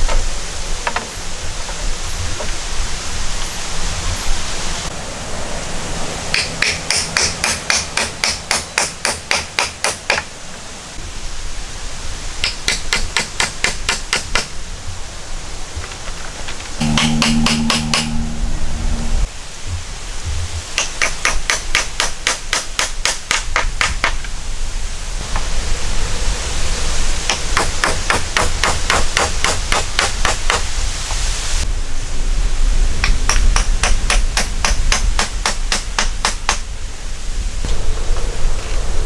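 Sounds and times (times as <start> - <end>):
steady background hiss: 0.0 - 39.0
hammer blows: 16.8 - 19.3.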